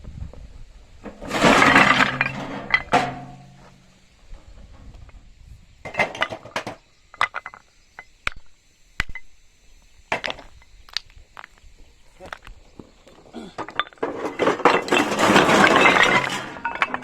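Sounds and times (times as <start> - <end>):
hard objects knocking and clinking: 5.9 - 9.3, 13.5 - 17.0.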